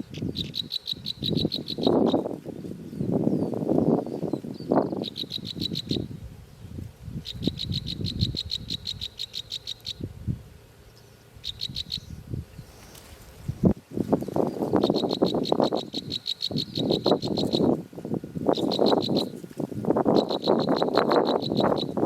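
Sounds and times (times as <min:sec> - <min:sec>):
high-pitched chirping trills: 0:00.1 - 0:02.3, 0:03.0 - 0:06.2, 0:07.2 - 0:10.1, 0:10.9 - 0:12.8, 0:14.4 - 0:17.8, 0:18.5 - 0:19.4, 0:20.1 - 0:22.0
low rustling: 0:12.2 - 0:14.8.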